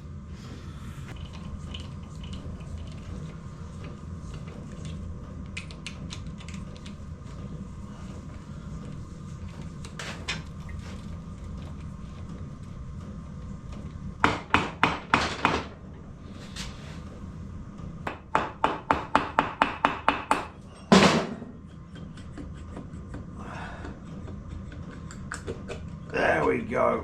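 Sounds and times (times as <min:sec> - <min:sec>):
hammer knocking on metal: 0:14.2 - 0:15.7, 0:18.1 - 0:21.6.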